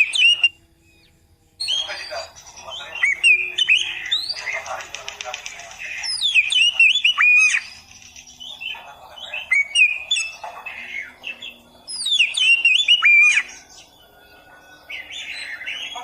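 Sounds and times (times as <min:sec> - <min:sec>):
bird singing whistles and chirps: 0:00.0 - 0:04.7, 0:06.0 - 0:16.0.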